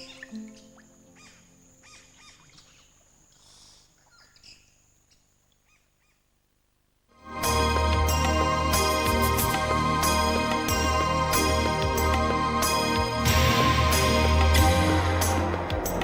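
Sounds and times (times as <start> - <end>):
bird chirps and calls: 0.0 - 6.2
orchestral music: 7.2 - 16.0.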